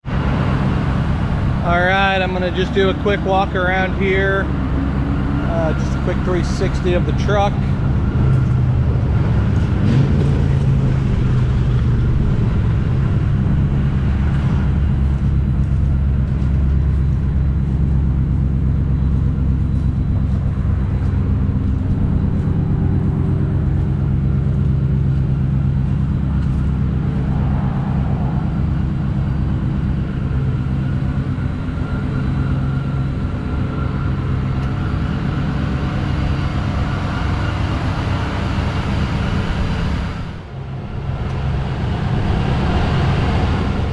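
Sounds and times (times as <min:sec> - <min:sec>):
truck engine idling: 0:00.0 - 0:43.9.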